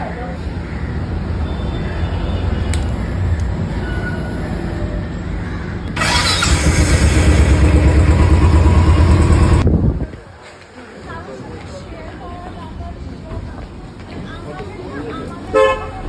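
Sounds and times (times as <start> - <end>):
vehicle engine rumbling: 0.9 - 9.8
fast low pulsing: 6.0 - 9.6.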